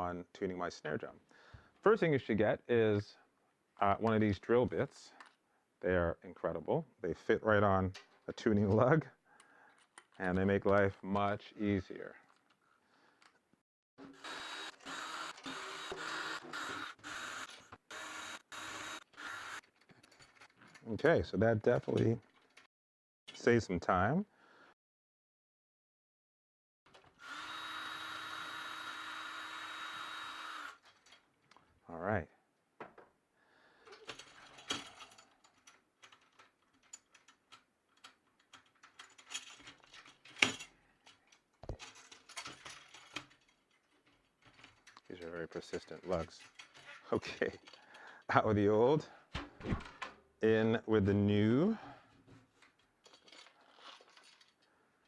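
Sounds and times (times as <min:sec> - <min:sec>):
cordless drill motor whine: 0:14.0 - 0:19.6, 0:27.2 - 0:30.8
metal clicks and scrapes: 0:33.9 - 0:48.2, 0:52.6 - 0:54.7.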